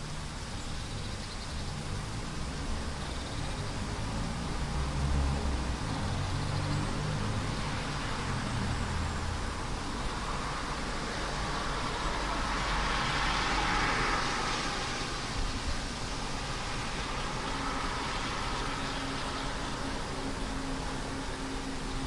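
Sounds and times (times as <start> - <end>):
tyre hiss on wet road: 0.0 - 22.0
rain hissing: 7.0 - 22.0.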